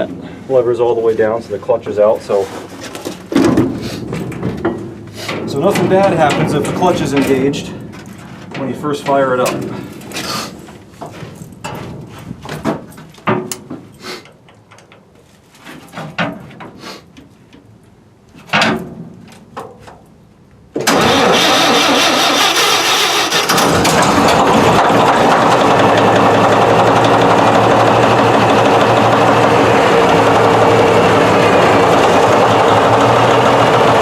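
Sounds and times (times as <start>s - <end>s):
diesel engine starter cranking: 20.8s - 34.0s
diesel engine running: 20.9s - 34.0s.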